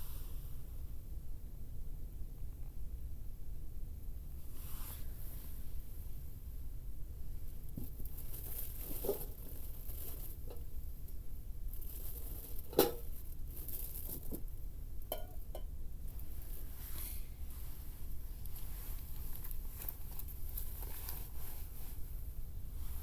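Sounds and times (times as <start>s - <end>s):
handling rustles and clicks: 7.8s - 10.7s, 11.8s - 14.5s, 18.5s - 21.6s.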